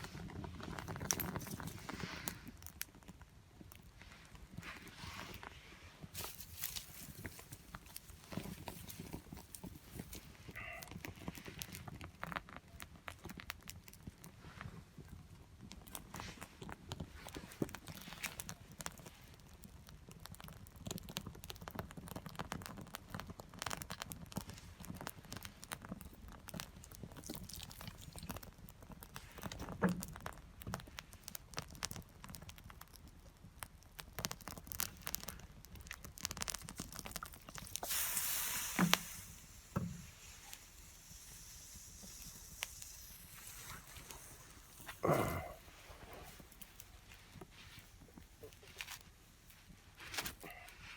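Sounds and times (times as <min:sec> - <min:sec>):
wood fire crackling: 0:00.0 - 0:50.9
sharp pops: 0:36.4 - 0:45.7
burst of noise: 0:37.8 - 0:46.0.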